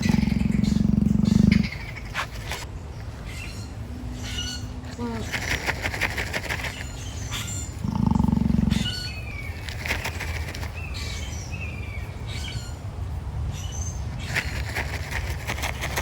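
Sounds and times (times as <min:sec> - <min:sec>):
emu deep low call: 0:00.0 - 0:02.4, 0:07.7 - 0:09.4
small birds chirping: 0:00.0 - 0:16.0.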